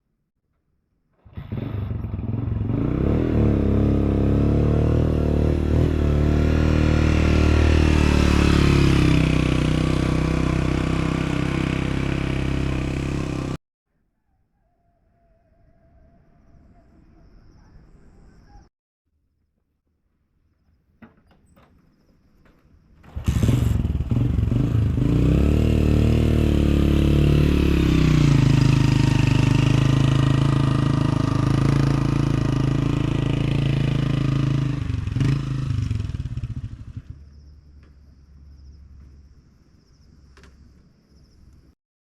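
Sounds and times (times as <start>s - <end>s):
engine starting and running: 1.1s - 3.5s, 23.0s - 27.1s.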